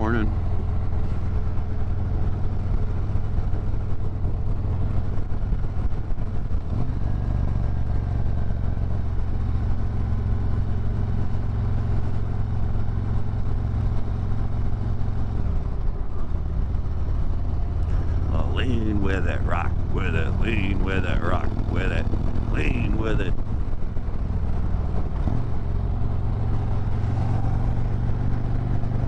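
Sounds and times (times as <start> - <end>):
wind and road noise: 0.0 - 29.0.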